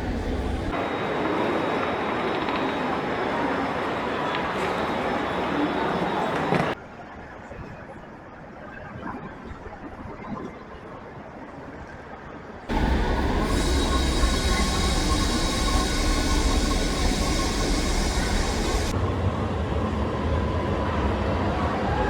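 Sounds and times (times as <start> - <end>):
train rumbling through station: 0.0 - 6.8, 12.7 - 22.0
high hiss: 12.7 - 19.0
train wheels squealing: 12.7 - 19.0.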